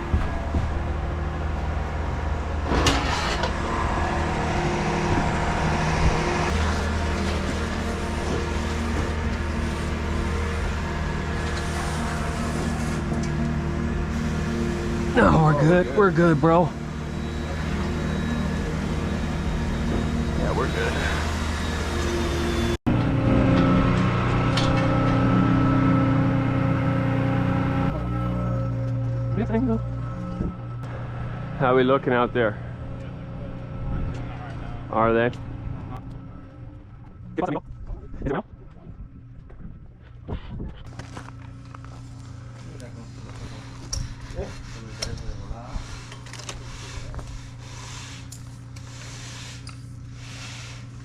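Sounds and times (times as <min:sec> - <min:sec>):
pump engine running: 0:02.4 - 0:24.6.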